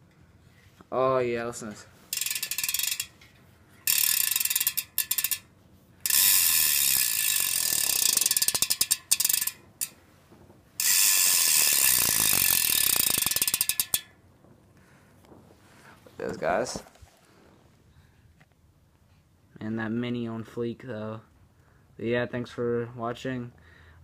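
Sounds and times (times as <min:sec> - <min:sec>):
bicycle hub ratcheting: 0:02.1 - 0:10.0, 0:10.8 - 0:14.2.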